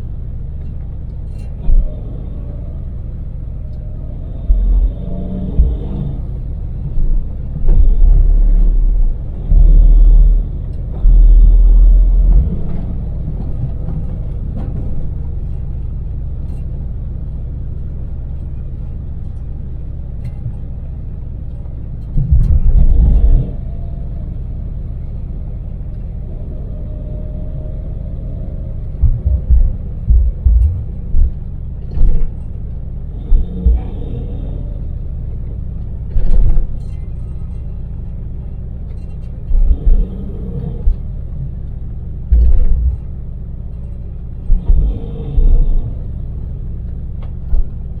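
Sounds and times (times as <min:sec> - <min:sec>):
road noise: 0:00.0 - 0:48.0
van engine rumbling: 0:00.0 - 0:48.0
loud low booming surges: 0:01.6 - 0:15.1, 0:22.1 - 0:36.8, 0:39.4 - 0:48.0.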